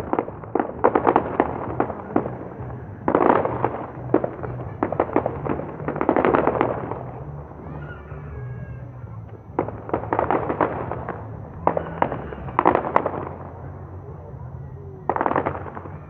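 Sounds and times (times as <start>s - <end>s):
fireworks crackling pops: 0.0s - 7.8s, 9.2s - 14.1s, 15.1s - 16.0s
low rumble: 0.0s - 16.0s.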